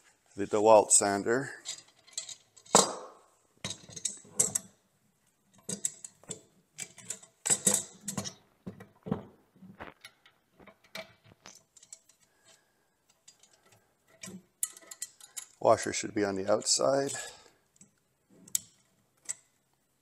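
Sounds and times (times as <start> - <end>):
small metal hardware clinking: 1.5 - 3.0, 3.6 - 4.8, 5.5 - 8.4, 10.0 - 15.6.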